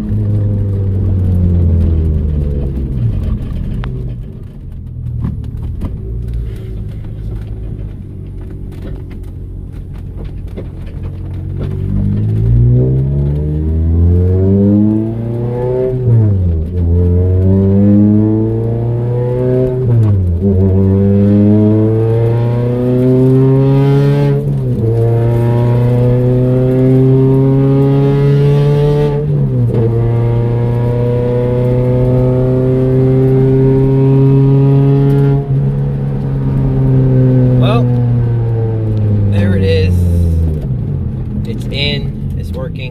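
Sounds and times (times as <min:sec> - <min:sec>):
car engine accelerating through gears: 0:00.0 - 0:42.9.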